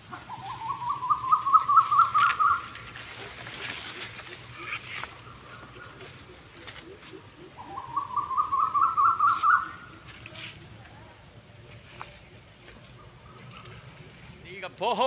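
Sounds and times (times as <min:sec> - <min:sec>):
bird calling rising notes: 0:00.3 - 0:03.0, 0:06.8 - 0:10.0.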